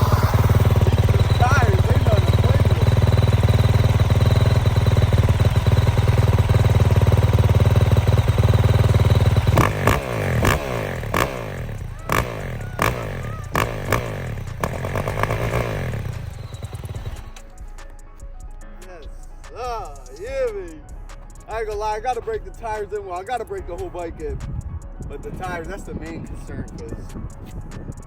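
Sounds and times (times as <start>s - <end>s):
motorcycle engine running: 0.0s - 17.7s
sharp cracks: 8.1s - 17.5s.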